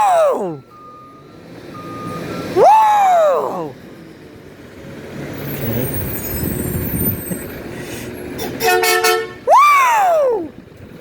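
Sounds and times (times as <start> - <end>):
garbage truck engine passing: 0.0 - 11.0
truck horn honks: 8.4 - 9.5.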